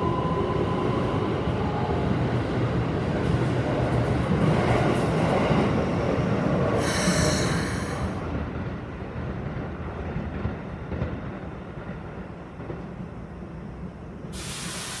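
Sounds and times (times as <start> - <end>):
electric train rumble: 0.0 - 15.0
hiss: 6.8 - 8.2, 14.3 - 15.0.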